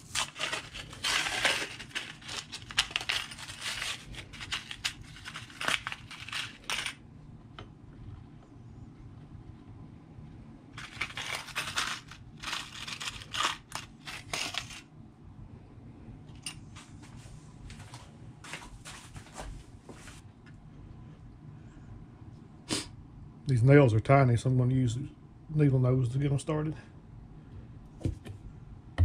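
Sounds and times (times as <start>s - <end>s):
rustling and crinkling: 0.0s - 7.0s, 10.8s - 14.9s, 16.7s - 20.2s.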